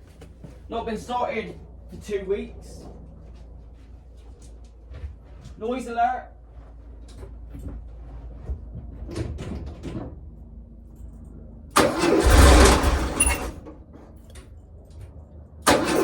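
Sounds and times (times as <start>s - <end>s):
engine cranking on starter: 11.8s - 13.8s, 15.6s - 16.0s.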